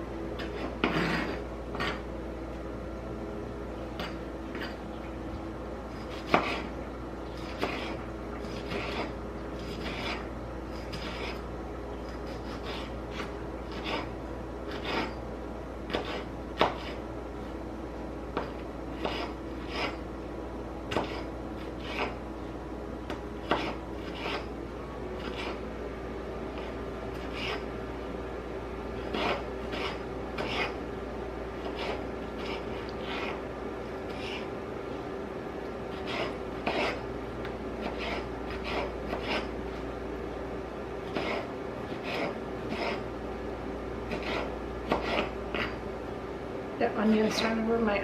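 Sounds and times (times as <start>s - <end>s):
knife cutting on a cutting board: 0.4s - 2.0s, 5.9s - 14.1s, 14.7s - 15.2s, 15.9s - 17.0s, 18.4s - 20.1s, 20.9s - 22.2s, 23.1s - 24.5s, 25.2s - 25.6s, 26.5s - 27.7s, 29.0s - 30.8s, 31.6s - 33.4s, 34.0s - 34.5s, 35.9s - 37.0s, 37.8s - 39.6s, 41.0s - 43.0s, 44.1s - 45.8s.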